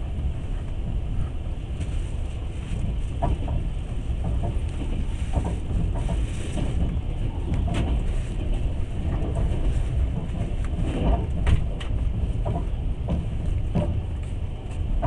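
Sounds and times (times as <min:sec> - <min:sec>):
train rumbling: 0:00.0 - 0:15.0
clanks and clicks: 0:03.2 - 0:15.0.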